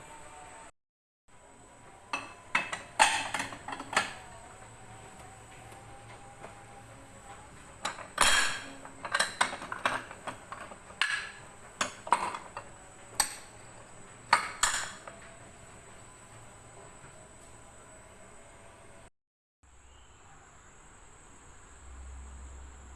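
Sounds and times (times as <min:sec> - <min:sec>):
dishes and cutlery clinking: 0:02.1 - 0:04.4, 0:07.3 - 0:15.3.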